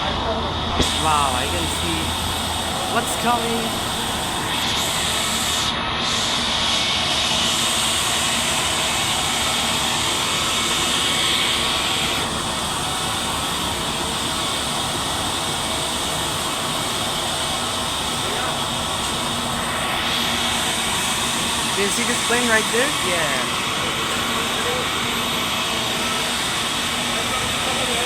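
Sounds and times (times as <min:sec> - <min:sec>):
high whine: 0:00.0 - 0:28.0.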